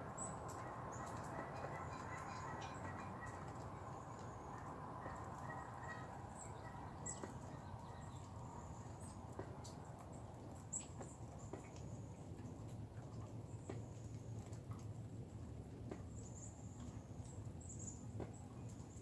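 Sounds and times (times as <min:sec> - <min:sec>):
faint outdoor hiss: 0:02.7 - 0:19.0.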